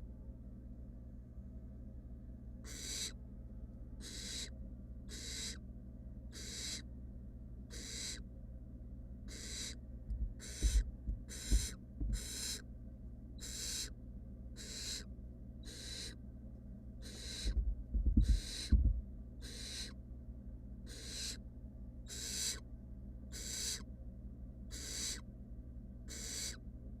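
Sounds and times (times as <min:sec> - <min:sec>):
owl nestlings hissing calls: 0:02.6 - 0:03.2, 0:04.0 - 0:04.5, 0:05.1 - 0:05.6, 0:06.3 - 0:06.9, 0:07.7 - 0:08.2, 0:09.3 - 0:12.6, 0:13.4 - 0:14.0, 0:14.6 - 0:16.2, 0:17.0 - 0:17.6, 0:18.2 - 0:18.8, 0:19.4 - 0:20.0, 0:20.8 - 0:21.4, 0:22.0 - 0:22.6, 0:23.3 - 0:23.9, 0:24.7 - 0:25.2, 0:26.1 - 0:26.6
low thumps and bumps: 0:10.1 - 0:12.3, 0:17.5 - 0:19.1.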